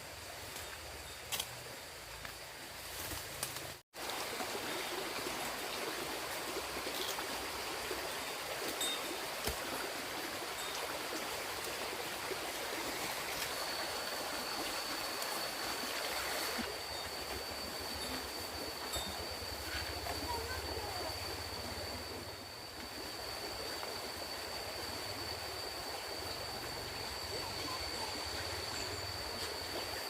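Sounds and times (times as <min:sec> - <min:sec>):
water running steadily: 0:04.0 - 0:30.0
thin high whine: 0:10.5 - 0:30.0.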